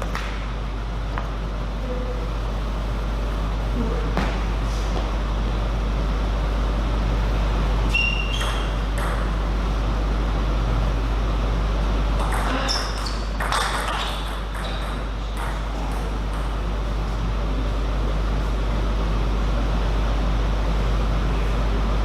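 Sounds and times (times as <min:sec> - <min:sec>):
table tennis ball hits: 0:08.3 - 0:09.4, 0:12.2 - 0:16.6.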